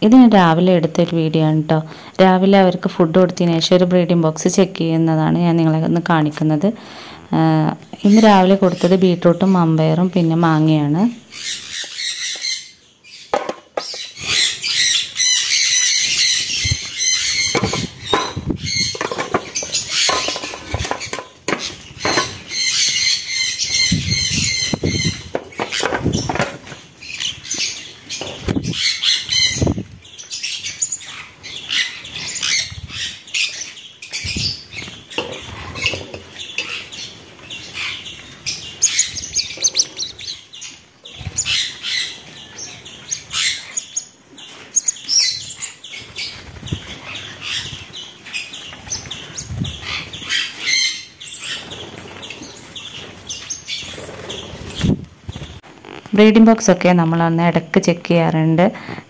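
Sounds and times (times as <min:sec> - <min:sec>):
birds chirping and squawking: 0:00.0 - 0:59.0
wings flapping: 0:16.4 - 0:30.0, 0:46.0 - 0:47.9.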